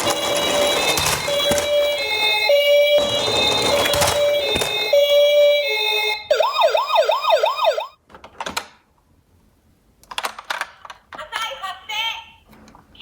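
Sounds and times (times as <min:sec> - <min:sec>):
toy siren wailing: 0:00.0 - 0:08.0
toy siren two-note tone: 0:00.3 - 0:08.0.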